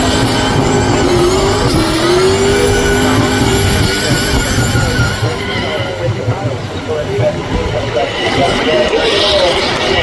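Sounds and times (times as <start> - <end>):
racing car engine at high revs: 0.0 - 5.6
rushing noise: 0.0 - 10.0.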